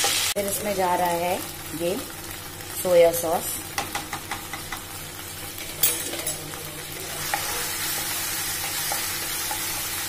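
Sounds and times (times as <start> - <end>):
sauce sizzling in hot oil: 0.0 - 10.0
spatula stirring and scraping: 3.8 - 10.0.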